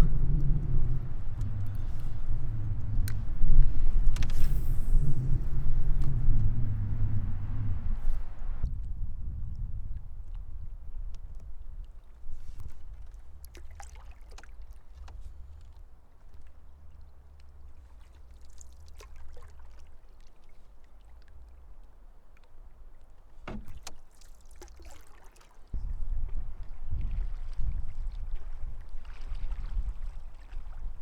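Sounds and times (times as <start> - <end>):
steady low rumble: 0.0 - 10.9
paddle splashing in water: 11.8 - 21.8, 23.1 - 31.0.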